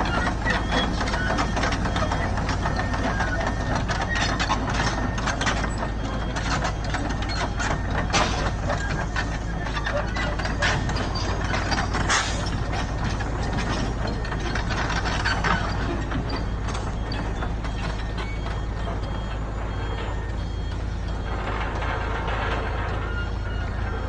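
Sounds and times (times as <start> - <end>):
construction machinery engine hum: 0.0 - 24.0
metallic clanks and rattles: 0.0 - 24.0.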